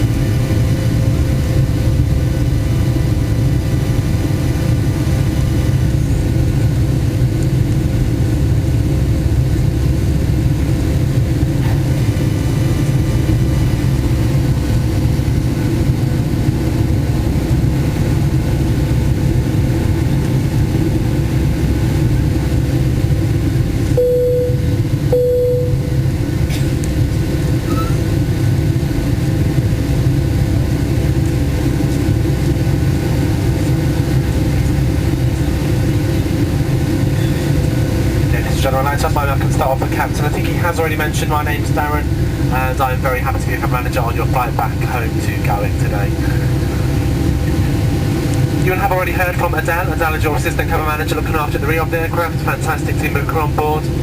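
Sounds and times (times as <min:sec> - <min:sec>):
airplane cabin engine rumble: 0:00.0 - 0:54.0
short chime tones: 0:24.0 - 0:26.0.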